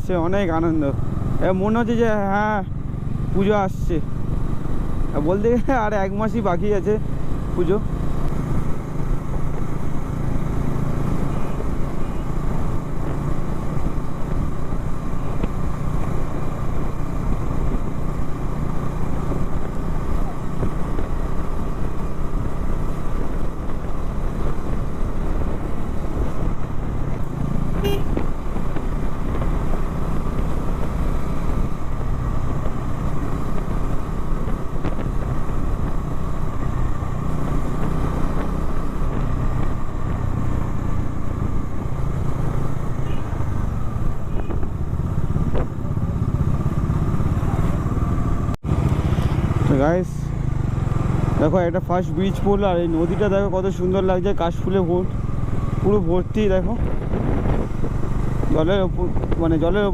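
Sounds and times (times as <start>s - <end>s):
motorcycle engine running: 0.0s - 59.9s
wind rushing over microphone: 6.4s - 59.9s
horn toot: 27.8s - 28.2s.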